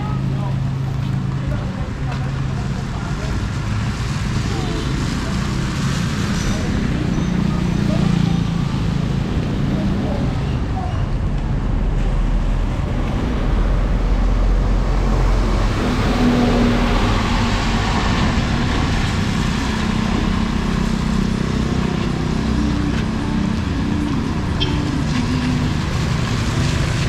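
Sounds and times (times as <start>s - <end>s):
street noise: 0.0s - 27.0s
low engine note: 12.2s - 27.0s
vehicle engine running: 12.6s - 27.0s.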